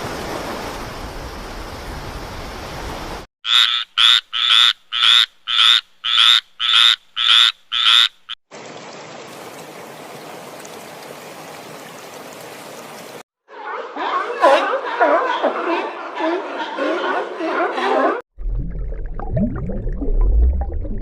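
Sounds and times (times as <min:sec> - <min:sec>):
animal calling: 0:13.5 - 0:18.2.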